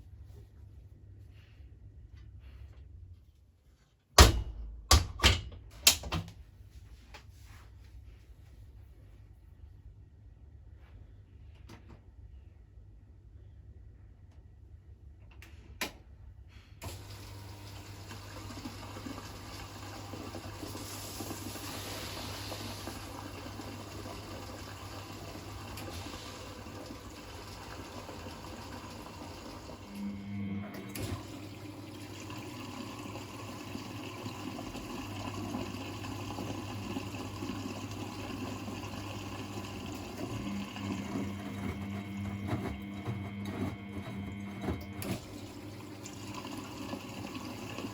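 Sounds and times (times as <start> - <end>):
water rushing into washing machine: 16.8 - 47.9
inlet valve humming: 20.6 - 47.9.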